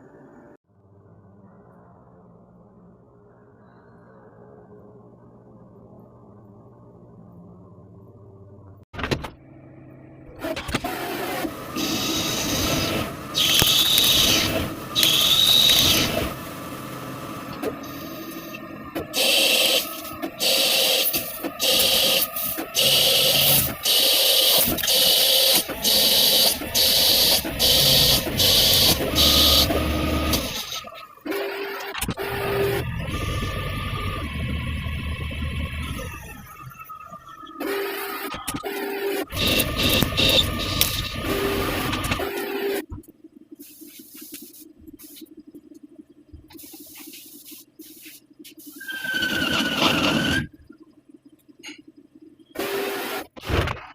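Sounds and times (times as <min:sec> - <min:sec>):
machine hum: 0:00.0 - 0:53.4
lathe cutting: 0:10.4 - 0:31.6
high squeal: 0:48.6 - 0:50.6.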